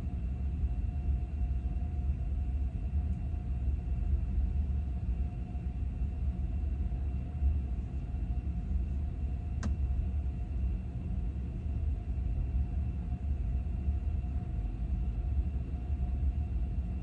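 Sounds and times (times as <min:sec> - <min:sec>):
faint steady whines: 0:00.0 - 0:17.0.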